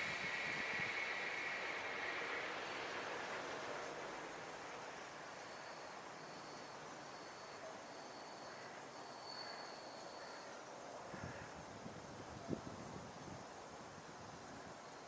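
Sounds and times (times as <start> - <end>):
insect trill: 0.0 - 2.4
insects droning: 0.0 - 12.4.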